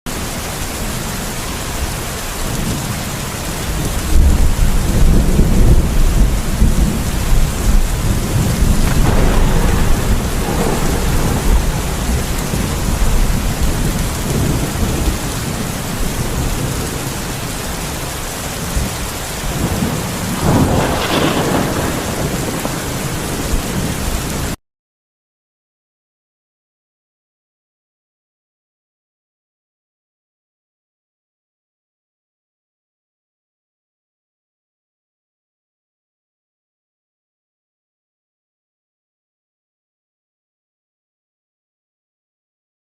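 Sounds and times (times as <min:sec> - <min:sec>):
heavy rain: 0:00.1 - 0:24.6
thunder rumbling: 0:01.7 - 0:24.6.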